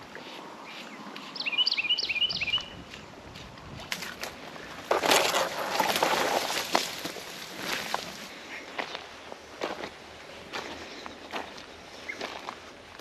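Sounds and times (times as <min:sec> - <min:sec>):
bird calling: 0:00.2 - 0:02.8
rustling splashing noise: 0:03.4 - 0:08.3.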